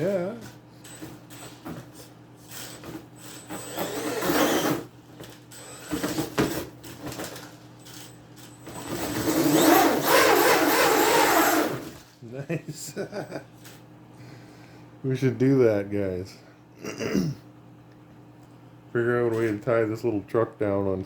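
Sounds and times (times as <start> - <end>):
rc truck electric motor whining: 2.4 - 4.9, 5.5 - 6.3, 7.8 - 12.1
tyres spinning on cardboard: 8.8 - 12.0.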